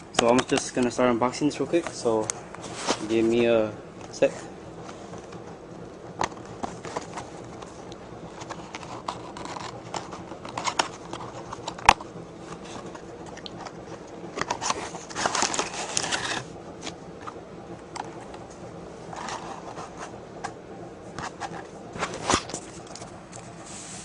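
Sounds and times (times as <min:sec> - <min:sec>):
packaging crinkling and tearing: 0:14.4 - 0:16.5.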